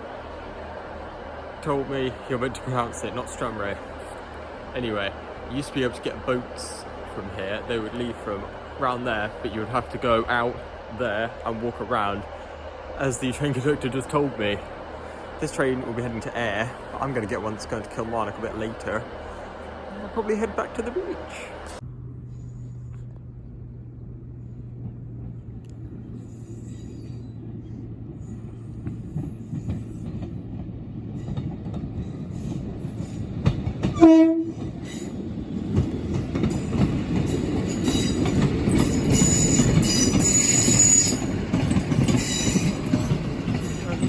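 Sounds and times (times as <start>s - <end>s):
diesel train idling hum: 0.0s - 31.2s
train running noise: 0.0s - 44.0s
train horn blast: 33.9s - 34.6s
wheel squeal: 37.8s - 41.4s, 42.0s - 42.9s.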